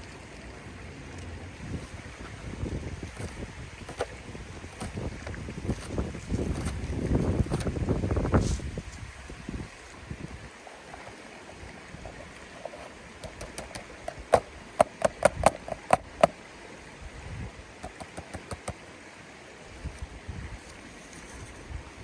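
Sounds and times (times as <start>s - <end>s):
river flowing: 0.0s - 8.4s, 9.0s - 22.0s
sharp clicks or knocks: 3.1s - 5.1s, 13.2s - 16.3s, 17.8s - 18.8s.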